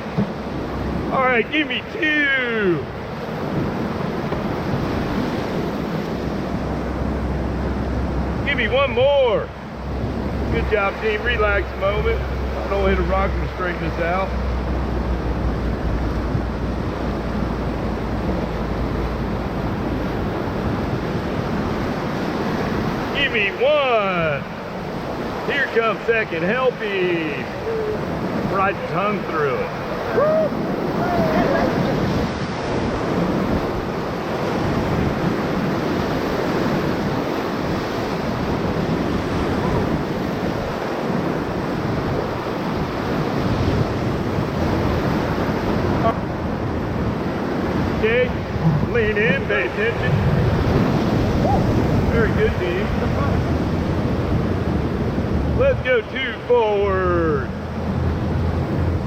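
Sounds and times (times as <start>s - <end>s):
wind rumbling on microphone: 0.0s - 56.2s, 57.4s - 59.0s
whitewater rushing: 0.0s - 59.0s.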